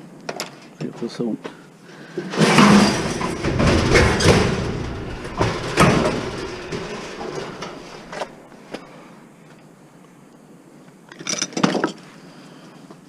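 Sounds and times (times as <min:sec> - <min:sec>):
metal parts scraping and clanking: 0:02.1 - 0:08.8.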